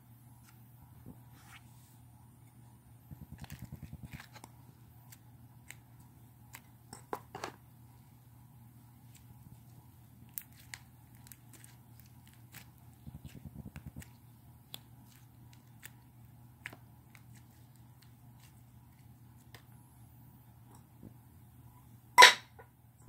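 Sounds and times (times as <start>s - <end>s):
slime squelching: 3.2s - 6.9s, 7.6s - 19.8s.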